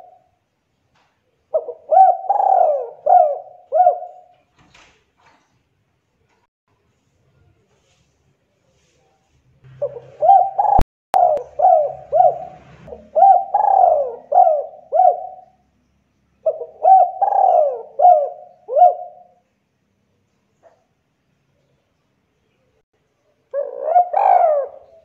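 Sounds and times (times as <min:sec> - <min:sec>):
dove cooing: 0:00.0 - 0:00.2, 0:01.5 - 0:04.3, 0:09.7 - 0:15.6, 0:16.4 - 0:19.4, 0:23.5 - 0:25.0.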